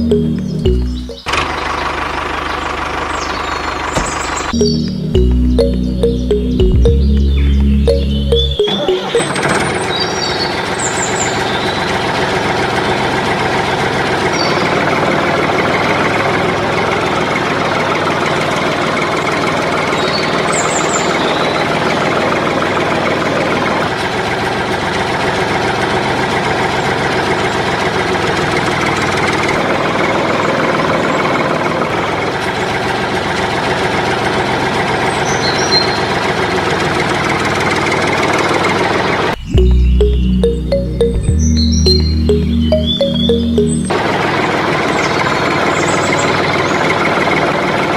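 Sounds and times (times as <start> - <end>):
tractor engine running: 0.0 - 5.9.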